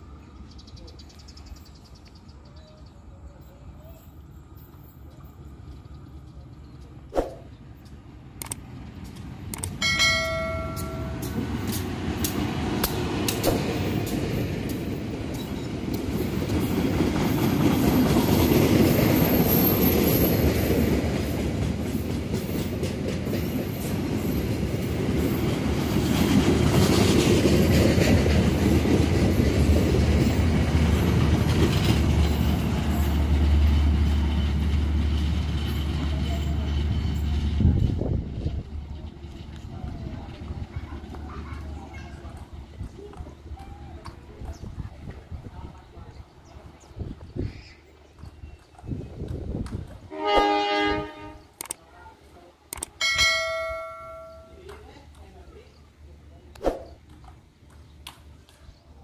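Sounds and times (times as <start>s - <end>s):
train rumbling past: 0.0s - 51.6s
wheels clacking over rail joints: 7.7s - 45.3s
train horn: 50.1s - 51.5s.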